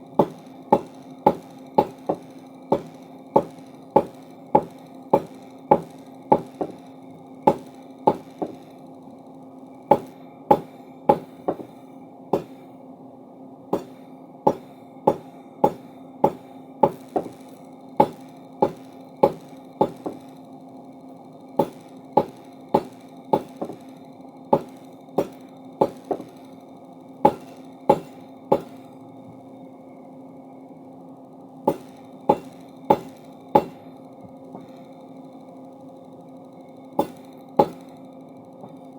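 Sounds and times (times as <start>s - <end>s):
steady low hum: 0.0s - 38.9s
forging hammer striking hot steel: 0.2s - 8.8s, 9.9s - 12.7s, 13.7s - 20.4s, 21.6s - 26.6s, 27.2s - 29.0s, 31.7s - 33.9s, 37.0s - 38.0s.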